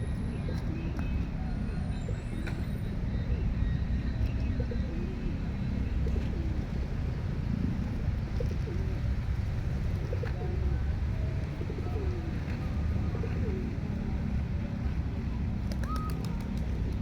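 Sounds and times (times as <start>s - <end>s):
pigeons cooing: 4.4s - 15.0s, 15.7s - 17.0s.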